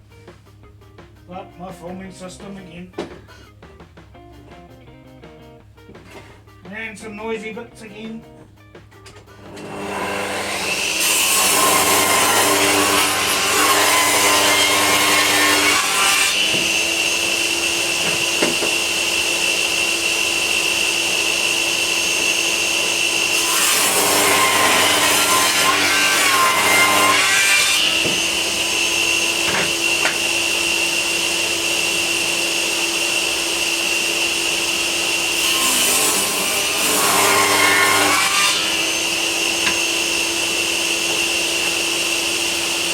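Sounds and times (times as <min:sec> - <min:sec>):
power saw motor running: 0:09.3 - 0:42.9
saw blade cutting wood: 0:09.3 - 0:42.9.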